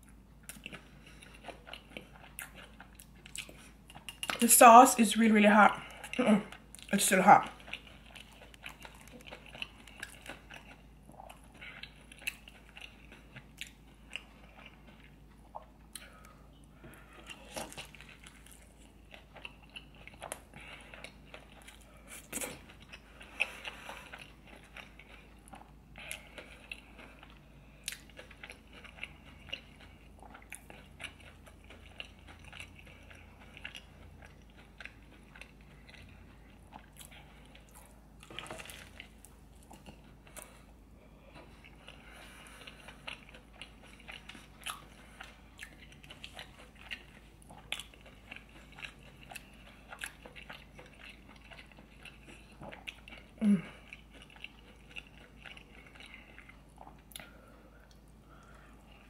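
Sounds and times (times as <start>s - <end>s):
person crunching fried food: 7.5s - 16.4s, 17.1s - 40.7s.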